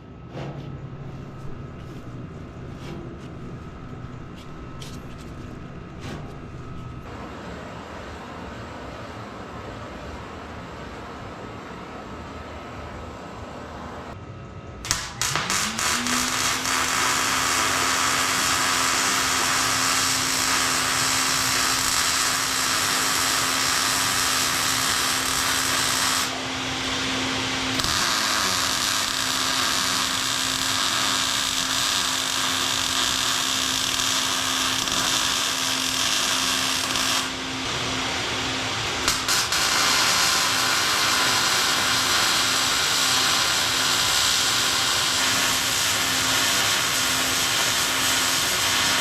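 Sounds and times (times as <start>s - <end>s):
angle grinder grinding steel: 15.2s - 37.4s.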